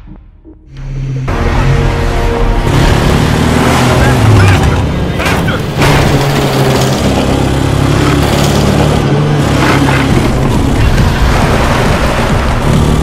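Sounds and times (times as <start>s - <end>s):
film music: 0.0s - 8.1s
car engine running: 0.0s - 13.0s.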